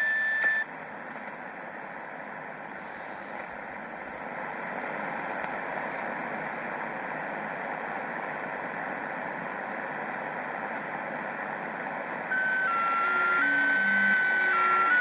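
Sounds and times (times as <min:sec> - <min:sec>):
shortwave receiver hiss: 0:00.0 - 0:15.0.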